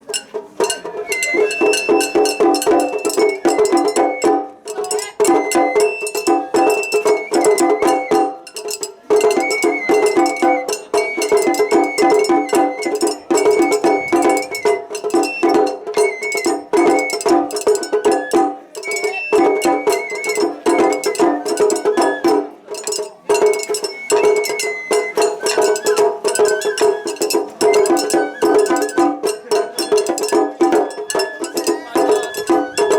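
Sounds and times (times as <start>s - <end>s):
fast taiko drumming: 0.0s - 32.9s
high bamboo flute melody: 0.1s - 32.9s.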